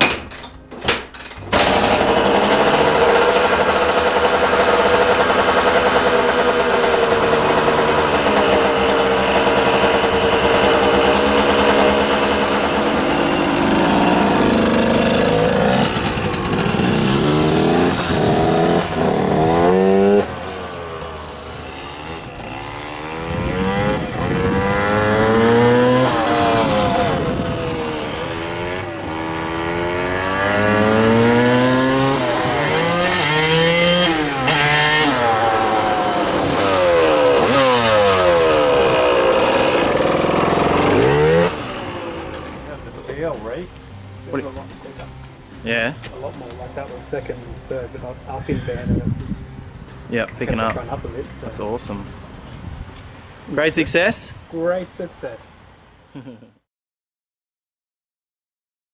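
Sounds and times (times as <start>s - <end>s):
two-stroke engine revving: 1.4s - 48.4s.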